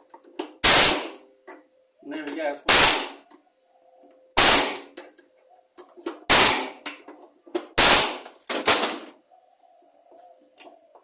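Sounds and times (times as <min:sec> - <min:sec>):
pneumatic air hammer bursts: 0:00.6 - 0:01.3, 0:02.7 - 0:03.2, 0:04.4 - 0:04.9, 0:06.3 - 0:07.0, 0:07.8 - 0:09.0.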